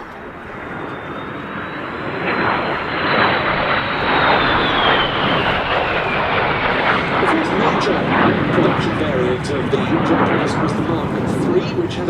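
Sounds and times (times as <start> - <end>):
high whine dropping in pitch: 0.0 - 9.2
jet aircraft flying past: 0.0 - 12.0.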